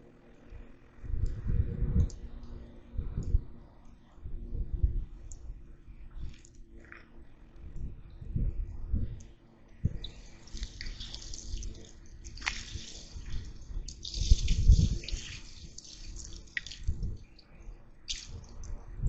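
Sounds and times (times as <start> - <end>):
water hissing on hot embers: 10.0 - 17.0.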